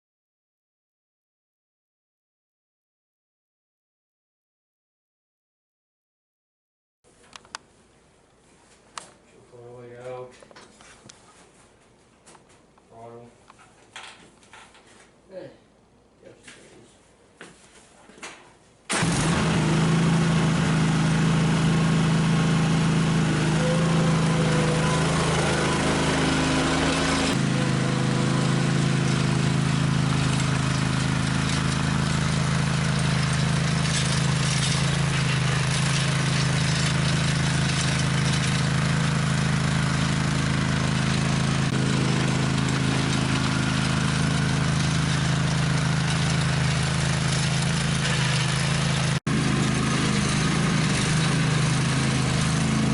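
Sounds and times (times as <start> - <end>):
small gasoline engine running: 18.9 - 52.9.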